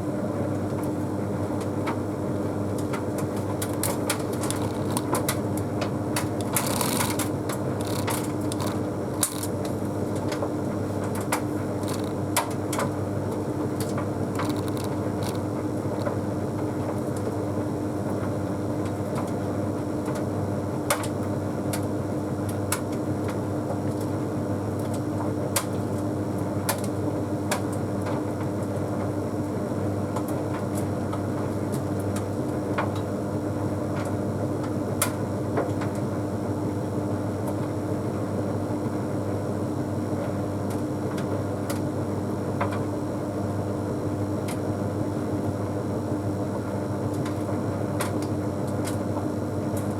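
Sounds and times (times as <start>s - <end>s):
tumble dryer humming: 2.8s - 16.7s
clothes clicking in tumbling drum: 3.3s - 5.4s, 6.2s - 9.7s, 11.3s - 12.2s, 14.3s - 16.2s.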